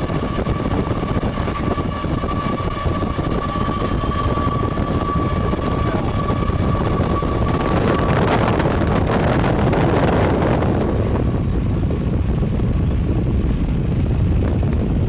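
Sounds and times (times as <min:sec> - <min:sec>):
freight train running: 0:00.0 - 0:15.0
thin whine: 0:00.0 - 0:15.0
vehicle rumble: 0:00.0 - 0:15.0
wind buffeting microphone: 0:00.0 - 0:15.0.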